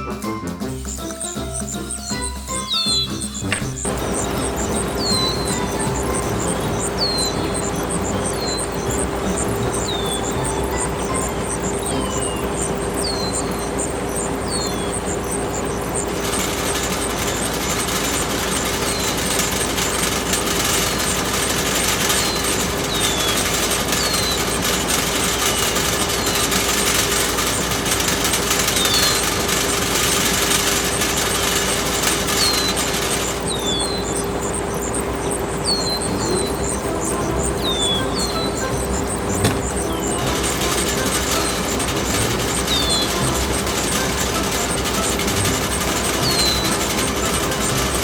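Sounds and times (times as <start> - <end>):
short falling chirps: 0.0 - 47.8
small machine rattling: 0.0 - 48.0.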